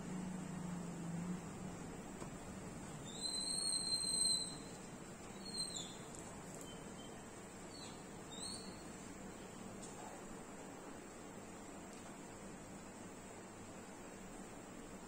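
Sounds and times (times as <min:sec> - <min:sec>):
faint room hiss: 0:00.0 - 0:15.0
bird whistling call: 0:03.0 - 0:08.8.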